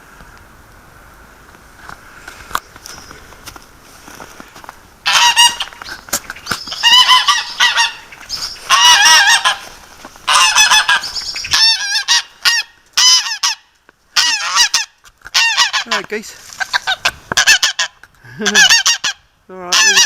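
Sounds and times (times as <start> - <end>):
geese honking: 5.0 - 20.0.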